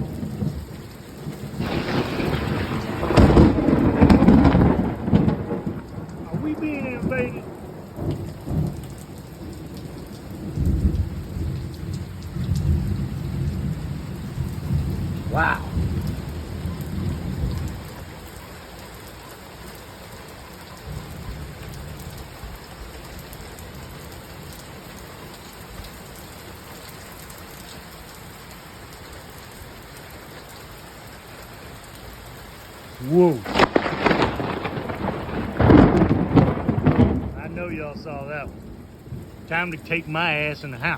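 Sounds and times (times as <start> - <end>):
thunder rumbling: 0.0 - 18.1, 33.0 - 40.9
heavy rain falling: 0.0 - 40.9.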